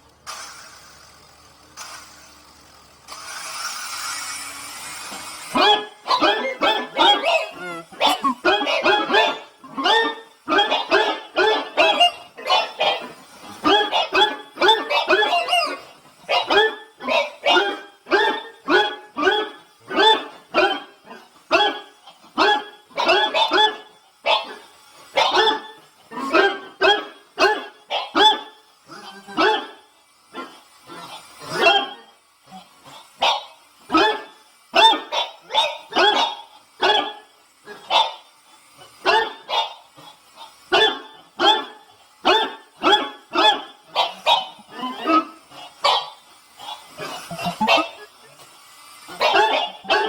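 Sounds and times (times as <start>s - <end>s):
dog barking: 5.5s - 28.6s, 29.2s - 30.5s, 31.5s - 32.1s, 33.2s - 38.2s, 39.0s - 39.8s, 40.7s - 48.1s, 49.1s - 50.0s.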